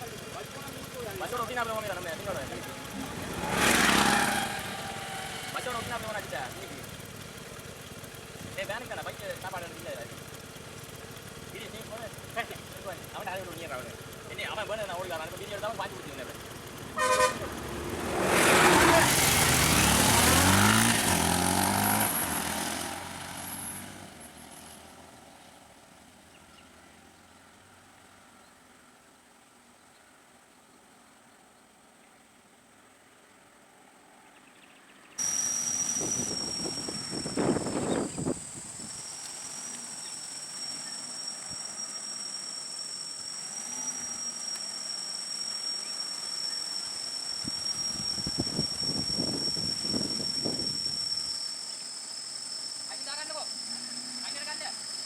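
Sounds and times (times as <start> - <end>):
vehicle engine humming: 0.0 - 34.1, 35.2 - 55.0
insects droning: 26.2 - 55.0.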